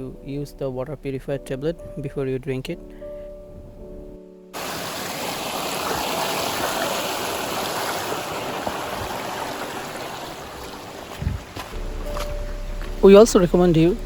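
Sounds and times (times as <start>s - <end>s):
stream water flowing and splashing: 4.6s - 13.0s.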